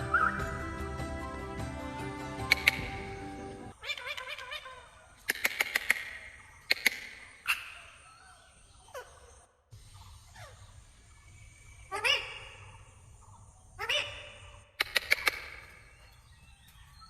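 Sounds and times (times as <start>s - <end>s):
parrot clicking: 2.3s - 3.2s, 5.2s - 7.2s, 14.8s - 15.8s.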